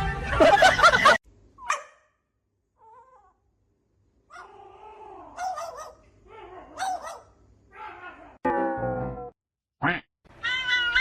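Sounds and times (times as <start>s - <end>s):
pet animal crying: 10.4s - 11.0s.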